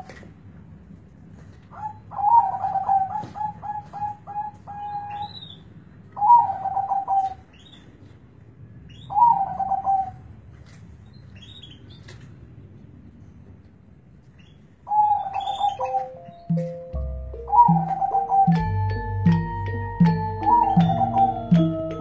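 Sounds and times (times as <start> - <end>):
dove cooing: 1.7 - 5.3, 6.2 - 7.4, 9.1 - 10.2, 14.9 - 19.0, 19.7 - 22.0
small birds chirping: 1.7 - 8.0, 11.0 - 12.2, 14.3 - 19.4, 20.0 - 22.0.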